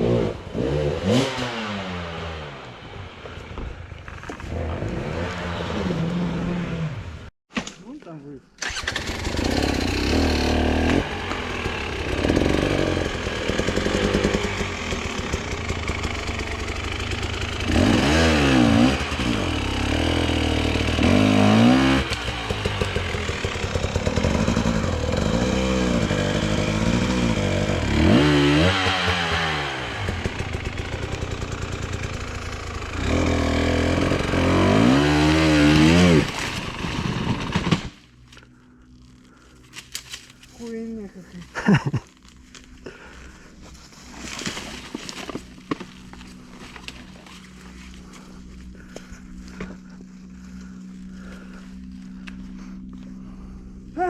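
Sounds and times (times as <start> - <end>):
motorcycle engine revving: 0.0 - 3.1, 4.4 - 7.3, 8.6 - 38.1.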